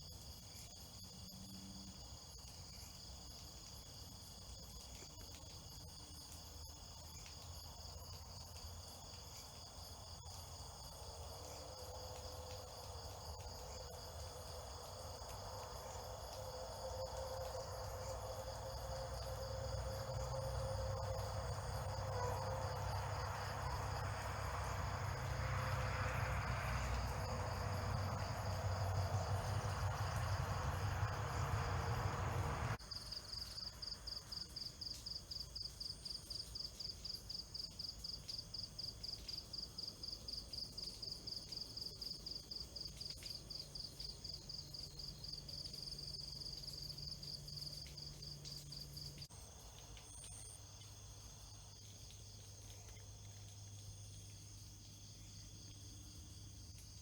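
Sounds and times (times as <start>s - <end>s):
insects chirping: 0.0s - 57.0s
broad rushing noise: 22.5s - 32.8s.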